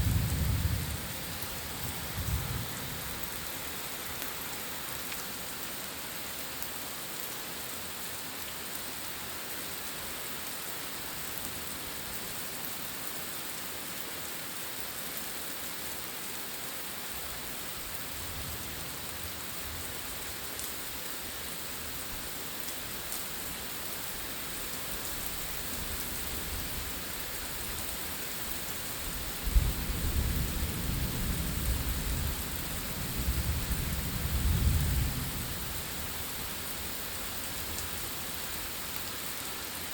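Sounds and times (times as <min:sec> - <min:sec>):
thunder rumbling: 0:00.0 - 0:03.2
steady rain falling: 0:00.0 - 0:39.9.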